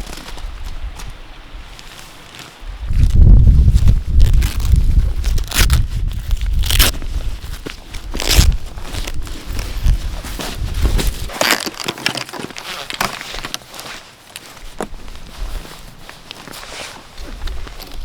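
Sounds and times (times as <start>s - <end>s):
packed snow crunching: 0.0s - 18.0s
low rumbling: 2.6s - 11.3s.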